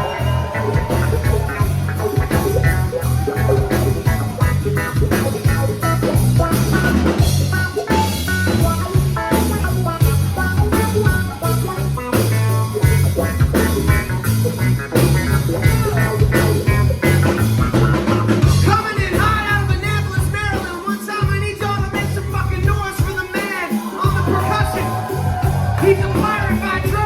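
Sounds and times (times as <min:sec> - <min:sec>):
guitar notes: 0:00.0 - 0:20.6
heavy bass line: 0:00.0 - 0:23.0, 0:24.1 - 0:27.0
drum kit beat: 0:00.0 - 0:27.0.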